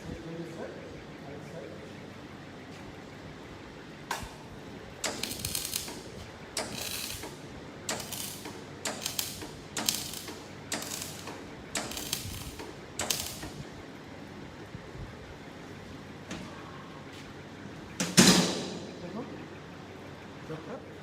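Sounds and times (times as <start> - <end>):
welding arc crackle: 5.0 - 13.6.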